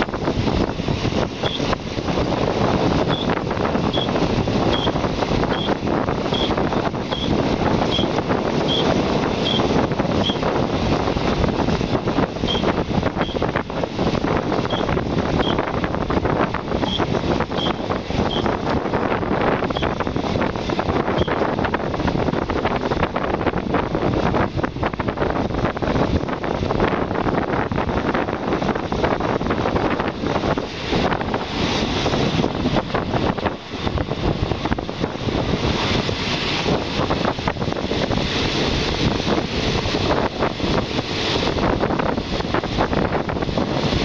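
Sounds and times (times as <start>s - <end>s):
train rumble and clatter: 0.0s - 44.0s
wind buffeting microphone: 0.0s - 44.0s
short high squeaks: 6.4s - 7.3s, 7.9s - 8.1s, 8.7s - 10.4s.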